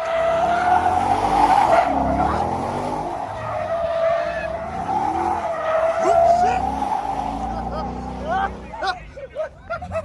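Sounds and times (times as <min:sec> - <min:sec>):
car engine revving: 0:00.0 - 0:09.0
tires squealing: 0:00.0 - 0:10.0.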